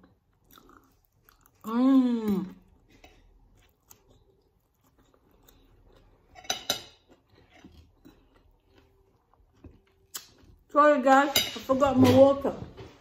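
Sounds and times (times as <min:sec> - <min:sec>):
chewing fried chicken: 0:00.2 - 0:01.8, 0:02.6 - 0:06.4.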